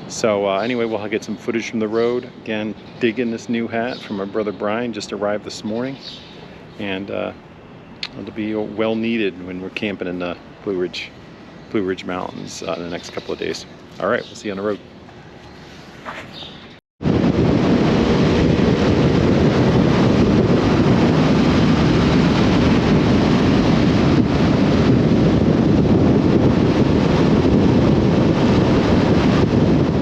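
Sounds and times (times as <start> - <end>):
wind noise on microphone: 0.0 - 7.4, 16.3 - 30.0.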